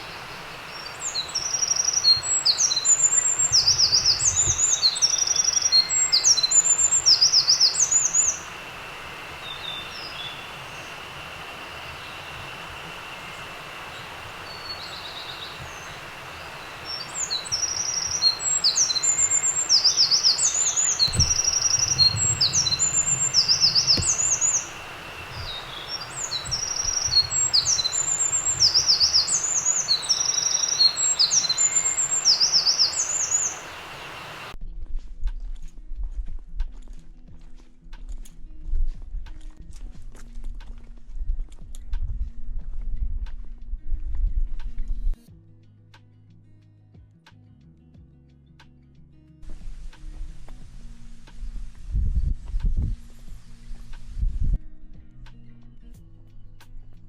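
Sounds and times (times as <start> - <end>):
songbird trilling: 0.0 - 34.6.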